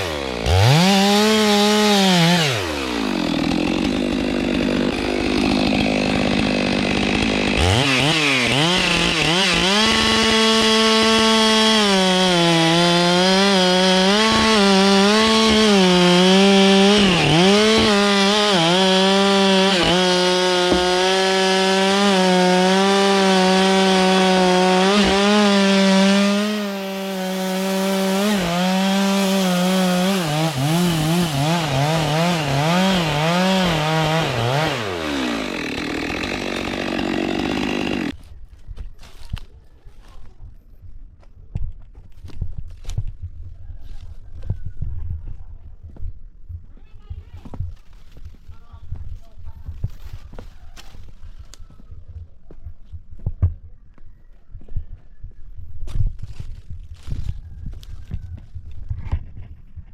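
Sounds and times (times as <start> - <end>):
chainsaw cutting wood: 0.0 - 38.2.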